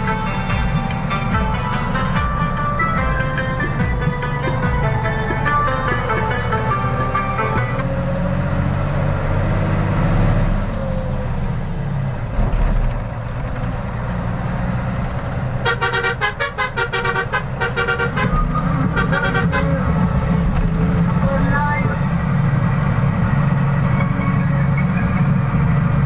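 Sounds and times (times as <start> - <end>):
truck engine running: 0.0 - 9.3, 10.6 - 26.0
vehicle horn pulsing toots: 15.6 - 20.0.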